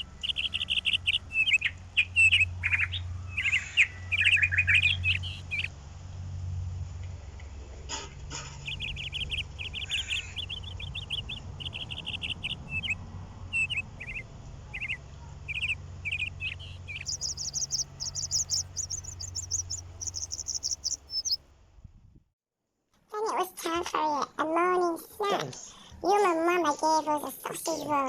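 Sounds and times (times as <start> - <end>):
small bird chirping trills: 0.0 - 5.7, 8.6 - 21.4
steady low hum: 13.8 - 21.4.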